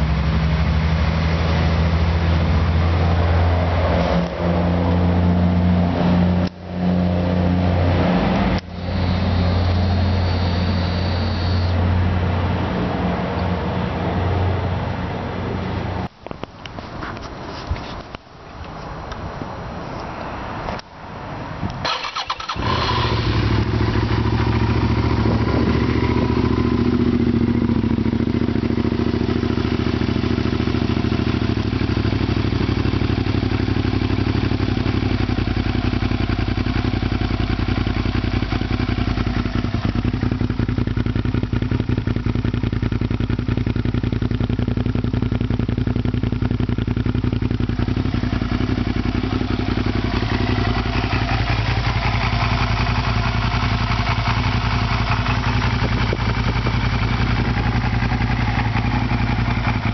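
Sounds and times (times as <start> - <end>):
motorcycle engine starting and idling: 8.2 - 11.9, 21.7 - 59.9.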